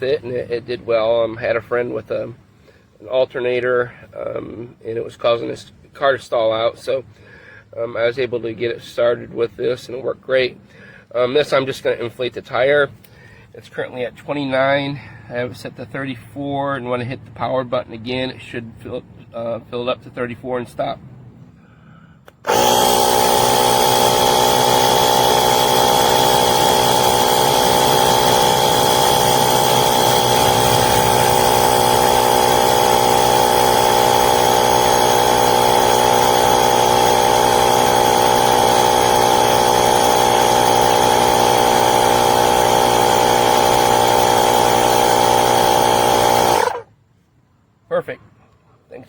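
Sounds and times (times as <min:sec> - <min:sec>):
electric air compressor whining: 0:22.3 - 0:46.9.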